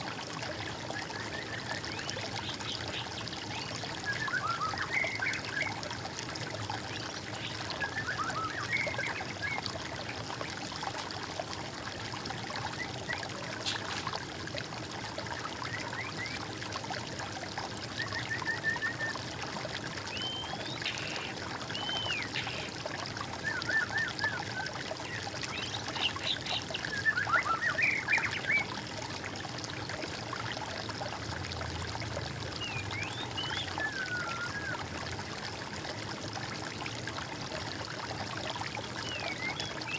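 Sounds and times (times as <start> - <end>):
water trickling: 0.0 - 39.9
songbirds singing: 1.0 - 5.8, 6.8 - 9.6, 20.1 - 22.8, 23.4 - 28.7, 32.5 - 34.8, 38.7 - 39.9.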